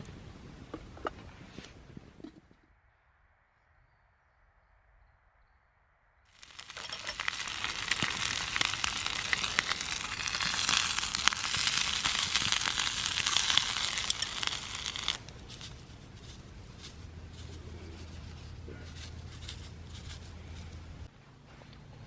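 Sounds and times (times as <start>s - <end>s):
fire crackling and hissing: 6.3s - 21.1s
sharp pops of fire: 6.4s - 15.3s.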